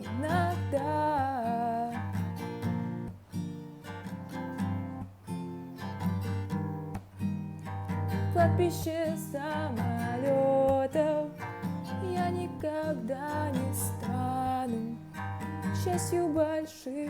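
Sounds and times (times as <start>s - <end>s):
young woman singing: 0.0s - 2.3s, 8.1s - 17.0s
acoustic guitar strumming: 0.0s - 17.0s.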